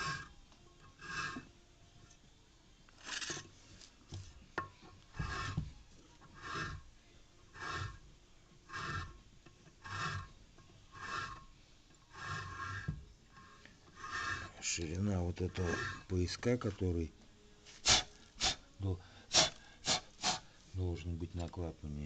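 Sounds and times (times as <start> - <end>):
cutter rasping metal: 0.0 - 0.3, 1.0 - 1.5, 5.1 - 5.6, 6.3 - 6.9, 7.5 - 8.0, 8.7 - 9.2, 9.8 - 11.5, 12.1 - 14.8, 15.5 - 16.2.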